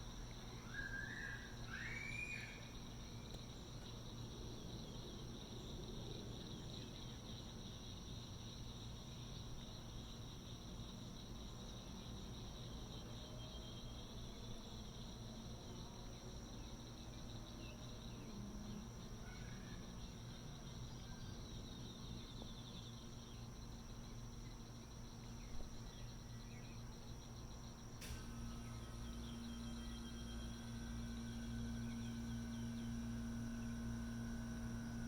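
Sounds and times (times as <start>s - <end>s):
insects trilling: 0.0s - 35.0s
low machine hum: 0.0s - 35.0s
faint chirps: 0.4s - 4.2s, 16.6s - 35.0s
sharp click: 28.0s - 28.4s.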